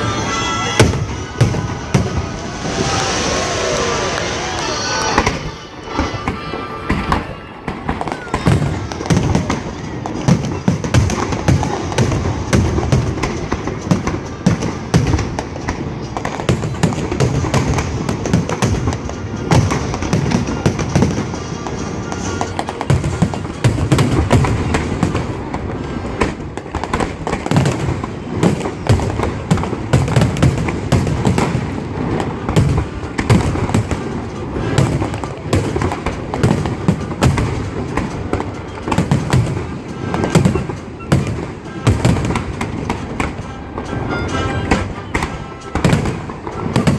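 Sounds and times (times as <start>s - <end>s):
music playing: 0.0s - 6.6s, 8.5s - 26.1s, 28.9s - 46.9s
fireworks booming and banging: 0.0s - 46.9s.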